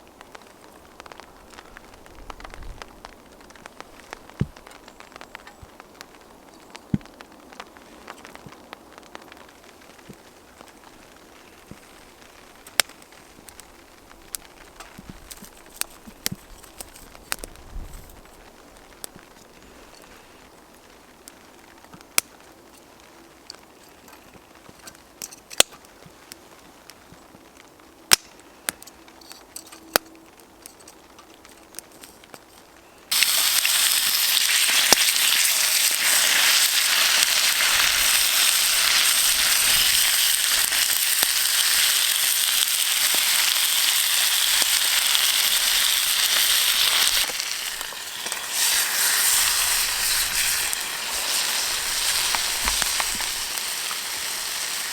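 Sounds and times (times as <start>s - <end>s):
campfire crackling and popping: 0.0s - 54.9s
bacon sizzling in a pan: 33.1s - 54.9s.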